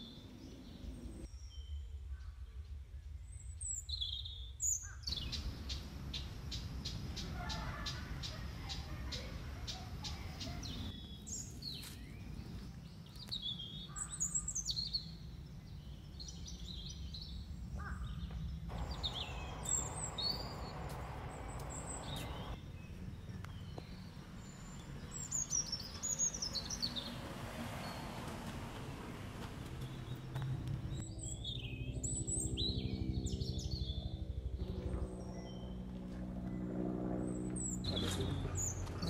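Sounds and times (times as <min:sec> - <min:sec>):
small birds chirping: 0:00.0 - 0:39.0
low background rumble: 0:16.7 - 0:25.2.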